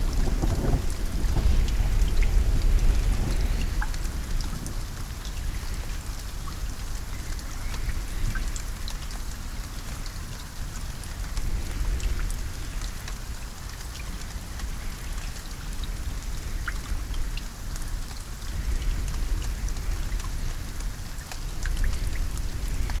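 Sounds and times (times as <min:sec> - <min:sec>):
deep low rumble: 0:00.0 - 0:06.1
rain pattering: 0:00.0 - 0:23.0.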